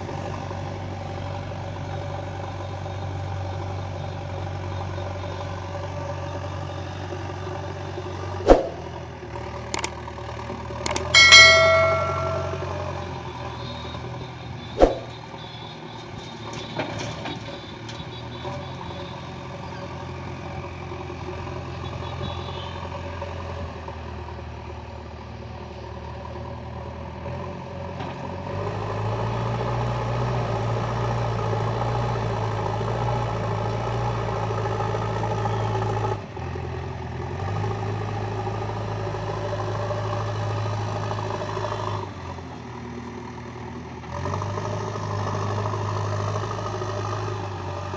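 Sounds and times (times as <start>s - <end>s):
sharp metal clank: 8.5s - 8.8s, 10.9s - 12.9s, 14.8s - 15.1s
diesel engine revving: 44.0s - 47.9s.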